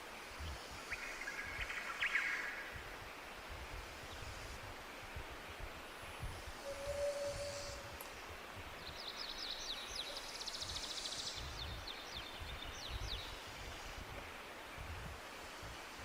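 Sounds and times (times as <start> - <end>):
songbird singing: 0.0 - 3.3, 6.3 - 15.0
background hiss: 0.0 - 16.0.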